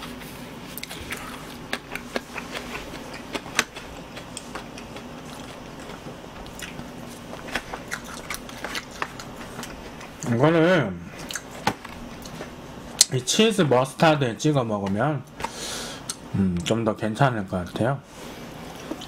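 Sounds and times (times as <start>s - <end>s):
person chewing crunchy food: 0.7s - 10.3s, 11.2s - 13.1s.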